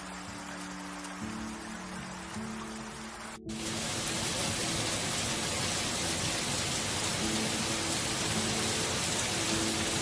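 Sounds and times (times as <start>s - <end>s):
heavy rain on foliage: 0.0s - 10.0s.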